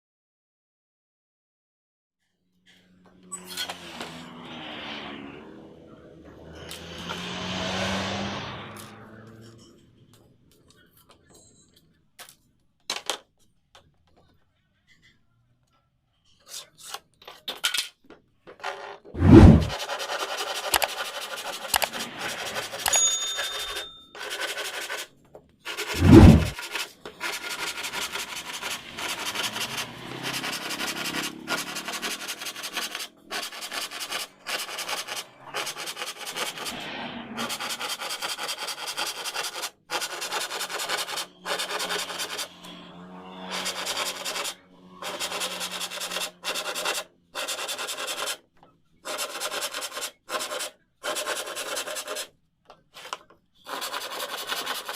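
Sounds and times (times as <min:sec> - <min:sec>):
sanding wood: 0:19.2 - 0:25.1, 0:25.7 - 0:48.4, 0:49.1 - 0:52.3, 0:53.7 - 0:54.9.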